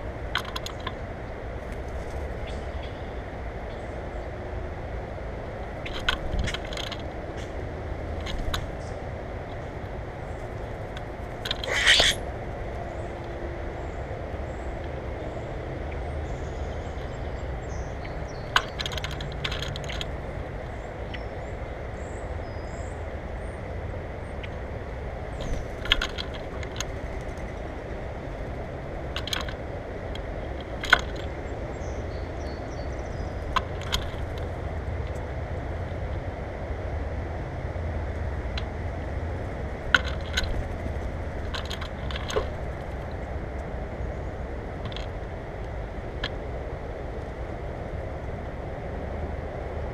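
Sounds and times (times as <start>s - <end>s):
low outdoor rumble: 0.0s - 49.9s
birds clicking and tapping: 0.2s - 3.0s, 5.6s - 22.9s, 24.2s - 36.0s, 38.5s - 46.5s.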